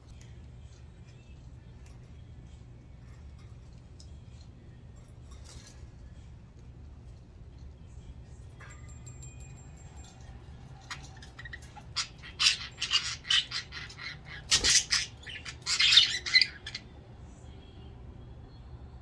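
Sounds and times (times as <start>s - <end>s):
budgerigars squawking and chattering: 10.7s - 16.9s.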